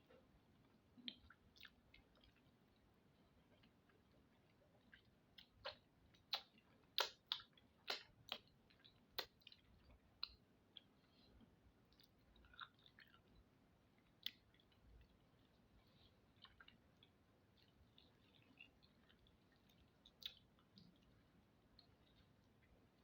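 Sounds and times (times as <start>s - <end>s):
person chewing and lip smacking: 0.1s - 11.2s, 11.9s - 23.0s
sharp wet clicks: 4.9s - 10.9s.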